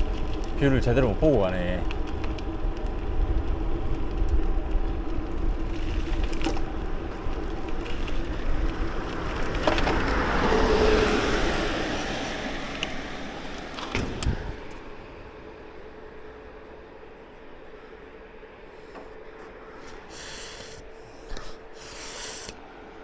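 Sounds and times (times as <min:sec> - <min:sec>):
wind rumbling on microphone: 0:00.0 - 0:16.6
passing car road noise: 0:02.5 - 0:20.9.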